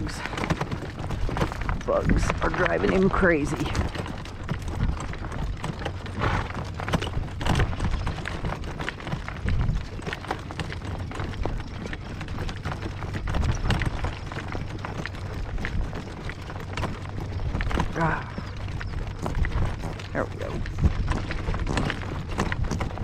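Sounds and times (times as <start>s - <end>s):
hooves clip-clopping at a trot: 0.0s - 23.0s
wind buffeting microphone: 0.0s - 23.0s.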